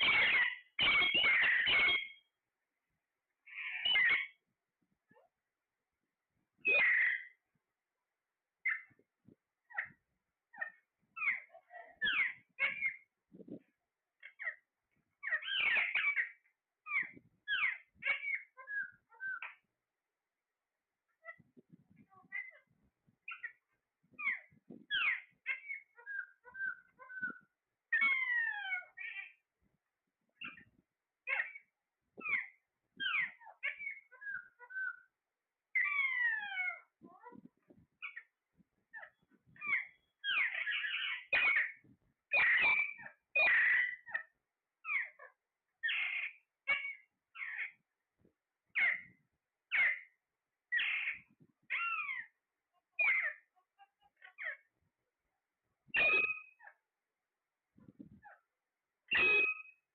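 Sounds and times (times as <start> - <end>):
parrot calling and whistling: 0.0 - 2.3, 3.5 - 4.4, 6.6 - 7.4, 10.5 - 13.1, 15.2 - 19.6, 24.2 - 29.3, 32.2 - 35.1, 35.8 - 36.8, 38.9 - 44.2, 44.8 - 47.7, 48.8 - 49.0, 49.7 - 50.1, 50.7 - 52.3, 53.0 - 53.4, 55.9 - 56.7, 59.1 - 59.8.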